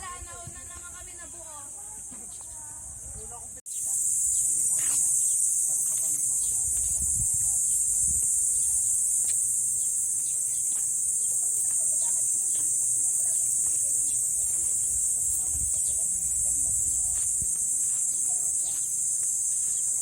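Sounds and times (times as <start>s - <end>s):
insects buzzing: 0.0s - 20.0s.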